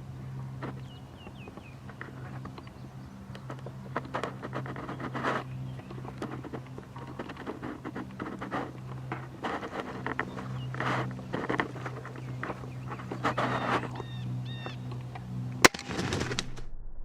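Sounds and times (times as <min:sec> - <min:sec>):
crunching and rustling: 0:00.0 - 0:16.5
steady low hum: 0:00.0 - 0:17.0.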